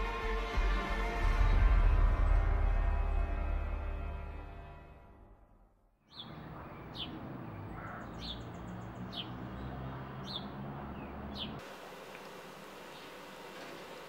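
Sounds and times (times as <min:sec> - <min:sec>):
eerie music: 0:00.0 - 0:05.7
birds chirping: 0:06.0 - 0:11.6, 0:12.5 - 0:14.0
outdoor background hiss: 0:10.5 - 0:14.0.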